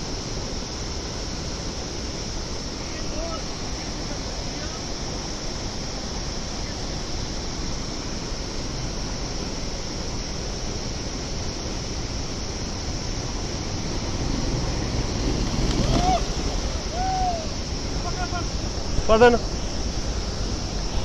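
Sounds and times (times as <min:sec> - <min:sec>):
river water rushing: 0:00.0 - 0:21.0
person calling out: 0:16.9 - 0:17.5.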